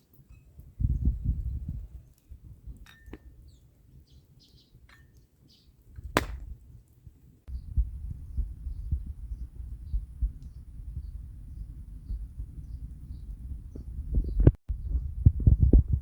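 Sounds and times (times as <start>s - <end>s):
wind rumble on microphone: 0.5s - 4.1s, 7.5s - 16.0s
bird chirps: 3.4s - 5.7s.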